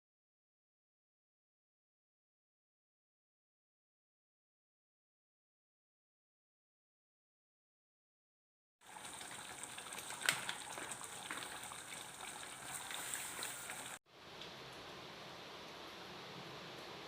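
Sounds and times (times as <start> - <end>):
water trickling: 8.8 - 14.9.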